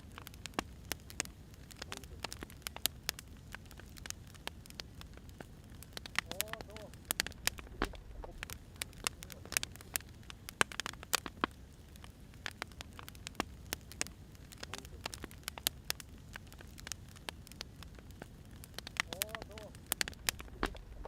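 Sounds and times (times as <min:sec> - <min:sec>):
firewood crackling and popping: 0:00.0 - 0:21.0
low fire rumble: 0:00.0 - 0:21.0.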